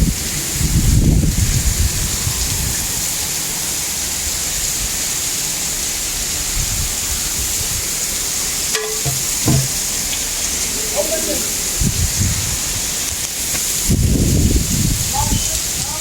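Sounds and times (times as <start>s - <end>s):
wind buffeting microphone: 0.0s - 3.2s, 11.7s - 13.0s, 13.7s - 16.0s.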